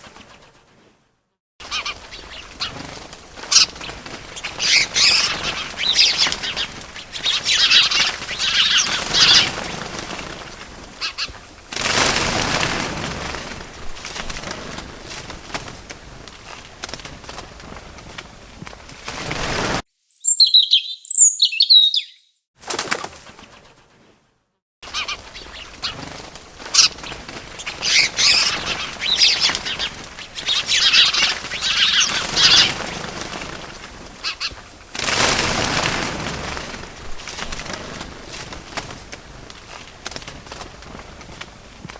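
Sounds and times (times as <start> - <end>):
bird wings flapping: 0.0 - 19.8, 22.6 - 41.9
bird chirping: 20.0 - 22.4, 27.6 - 32.7.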